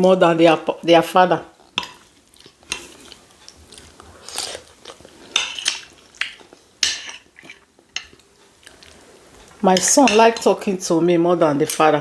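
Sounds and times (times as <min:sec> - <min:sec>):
chewing and mouth noises: 0:01.6 - 0:06.7, 0:07.4 - 0:09.6.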